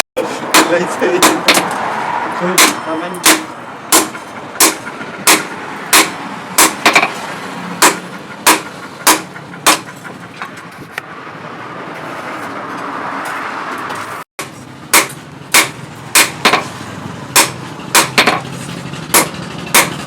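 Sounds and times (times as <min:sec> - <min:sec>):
hammer striking blade on anvil: 0:00.5 - 0:01.8, 0:02.6 - 0:07.2, 0:07.8 - 0:10.0, 0:14.4 - 0:16.7, 0:17.4 - 0:18.5, 0:19.1 - 0:20.0.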